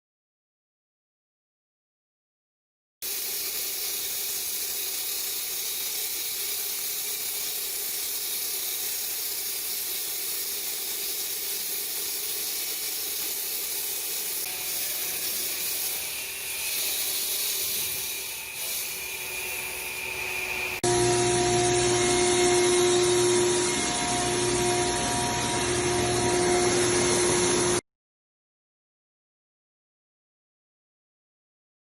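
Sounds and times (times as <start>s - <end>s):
concrete saw cutting concrete: 3.0s - 27.8s.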